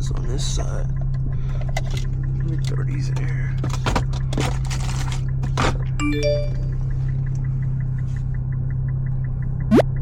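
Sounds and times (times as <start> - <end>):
car engine drone: 0.0 - 10.0
electronic chime: 6.0 - 6.9.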